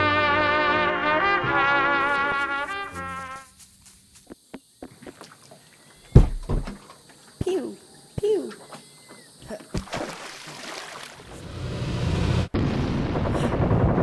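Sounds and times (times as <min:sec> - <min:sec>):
trumpets and trombones playing: 0:00.0 - 0:03.5
loud thump: 0:06.1 - 0:06.8.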